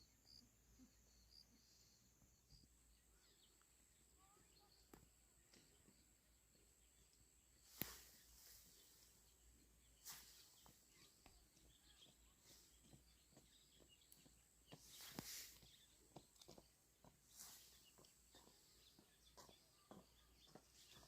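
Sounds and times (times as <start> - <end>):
soft rustling swishes: 7.6 - 9.4, 10.0 - 11.1, 14.8 - 15.8.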